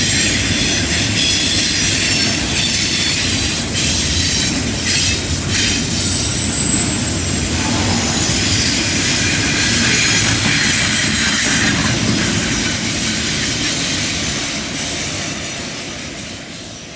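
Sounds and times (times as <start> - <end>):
train wheel and rail rumble: 0.0 - 16.9
high flange squeal: 5.4 - 12.5.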